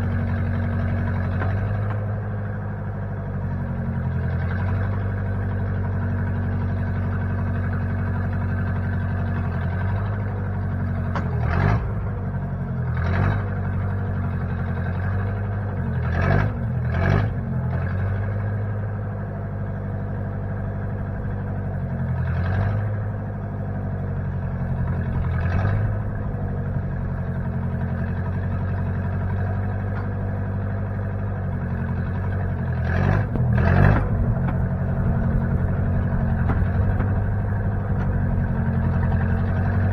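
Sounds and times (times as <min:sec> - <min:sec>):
backhoe engine idling: 0:00.0 - 0:39.9.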